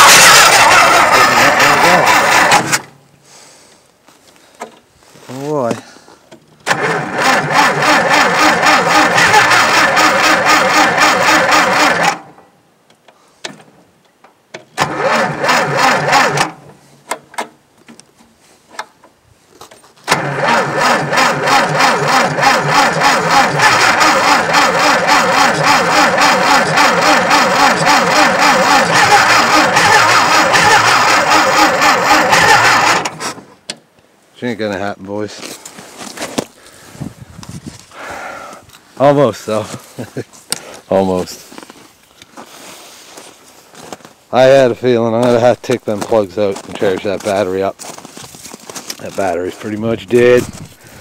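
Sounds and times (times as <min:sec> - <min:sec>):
starter cranking tractor engine: 0:00.0 - 0:03.0, 0:06.6 - 0:12.4, 0:14.8 - 0:16.7, 0:20.1 - 0:33.4.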